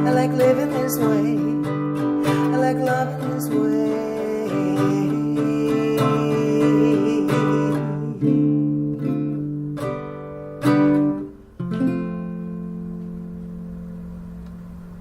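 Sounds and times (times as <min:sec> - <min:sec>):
ukulele strumming chords: 0:00.0 - 0:15.0.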